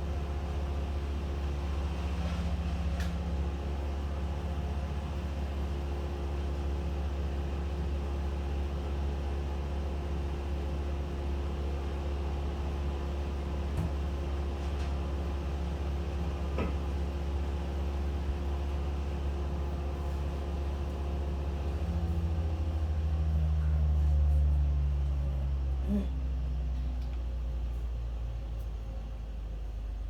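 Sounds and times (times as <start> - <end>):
engine humming: 15.9 - 30.0.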